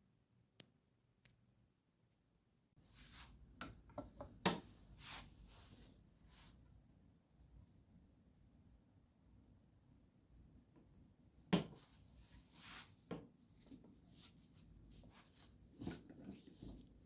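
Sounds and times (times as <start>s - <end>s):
scraping and handling sounds: 11.7s - 17.0s.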